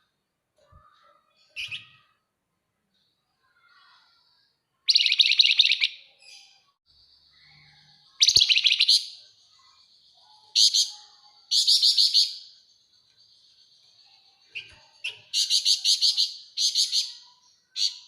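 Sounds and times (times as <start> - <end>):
bird chattering trills: 8.1 - 9.7.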